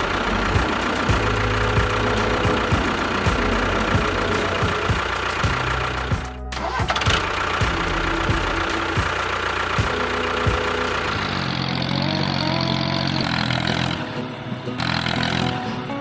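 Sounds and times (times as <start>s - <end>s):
engine running with regular knock: 0.0s - 11.8s
steady held tones: 0.0s - 16.0s.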